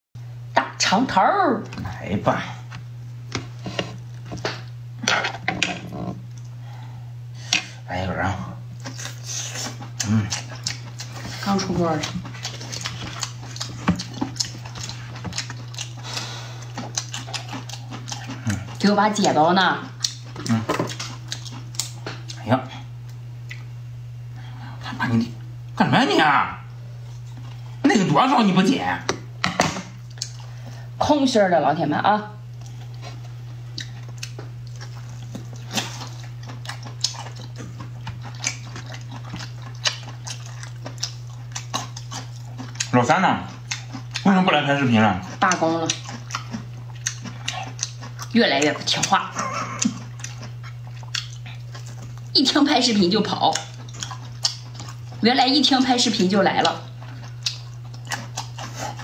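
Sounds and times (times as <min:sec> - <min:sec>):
steady low hum: 0:00.2 - 0:59.0
person chewing and lip-smacking: 0:08.8 - 0:23.7, 0:29.9 - 0:30.7, 0:32.5 - 0:59.0.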